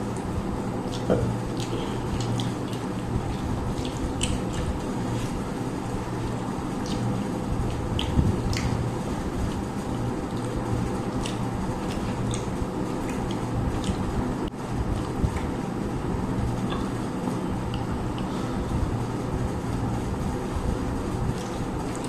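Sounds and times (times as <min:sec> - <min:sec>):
steady low hum: 0:00.0 - 0:22.0
wet eating clicks and smacks: 0:00.1 - 0:05.4, 0:06.2 - 0:15.6, 0:17.6 - 0:18.3, 0:21.3 - 0:22.0.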